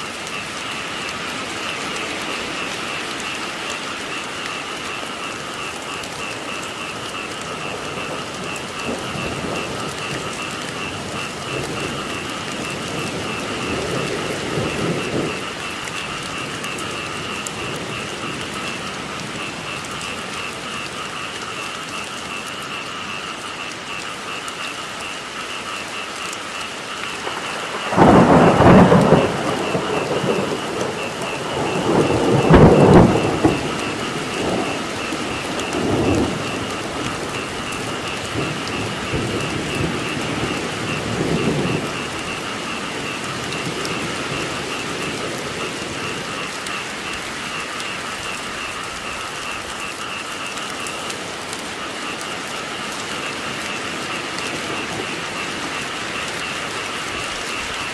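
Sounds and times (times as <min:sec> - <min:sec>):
thunder rumbling: 0:00.0 - 0:21.5, 0:27.0 - 0:57.9
frog chorus: 0:00.0 - 0:57.9
steady rain: 0:00.0 - 0:57.9.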